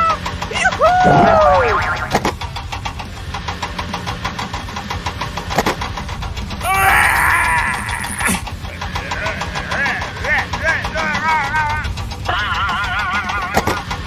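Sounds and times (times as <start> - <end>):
vehicle engine running: 0.0 - 14.0
falling glide tone: 0.6 - 2.3.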